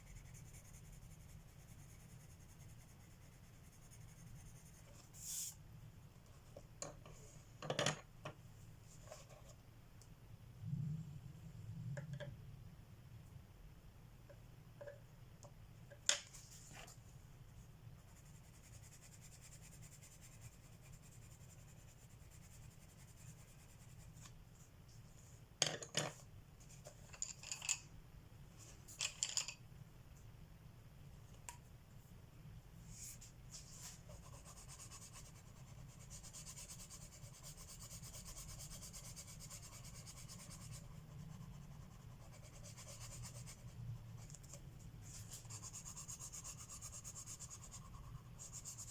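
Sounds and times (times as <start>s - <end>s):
colored pencil scratching paper: 0.0s - 5.6s, 18.0s - 24.3s, 32.9s - 48.9s.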